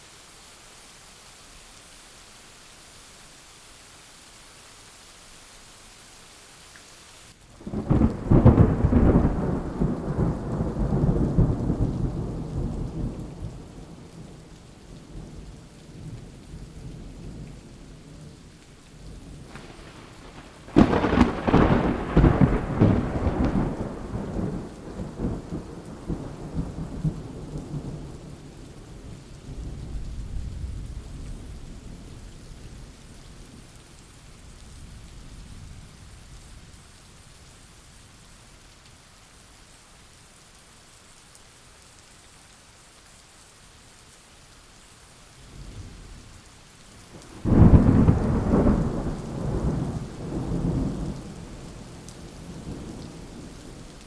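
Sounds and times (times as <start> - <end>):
rain hissing: 0.0 - 54.0
thunderclap rolling into rumble: 19.4 - 26.9, 47.2 - 51.4.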